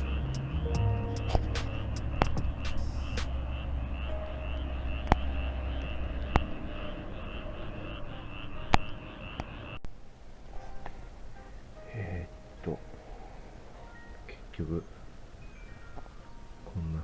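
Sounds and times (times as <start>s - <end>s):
rhythmic high chirping: 0.0s - 9.8s, 10.6s - 17.0s.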